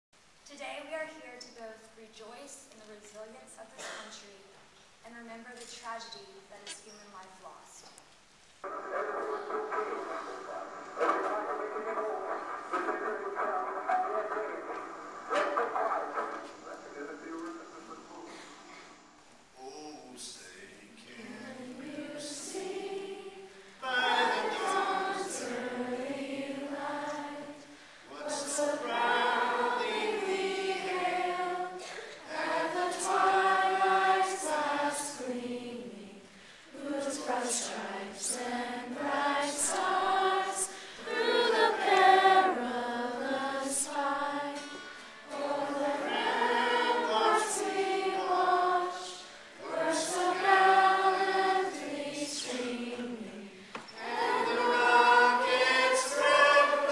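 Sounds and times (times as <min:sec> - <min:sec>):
choir singing: 0:20.6 - 0:56.9.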